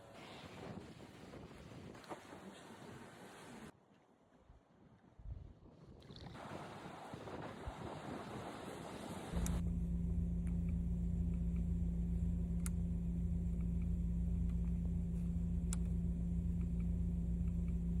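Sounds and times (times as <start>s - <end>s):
car engine idling: 9.3s - 18.0s
faint ticks: 9.4s - 18.0s.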